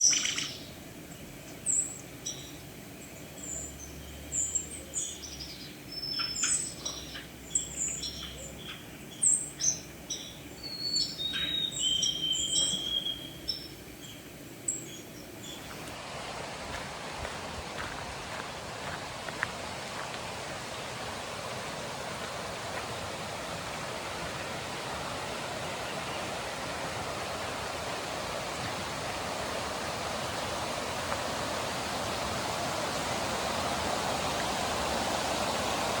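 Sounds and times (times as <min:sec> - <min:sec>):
songbirds chirping and whistling: 0:00.0 - 0:16.0
long held bird whistle: 0:10.6 - 0:13.7.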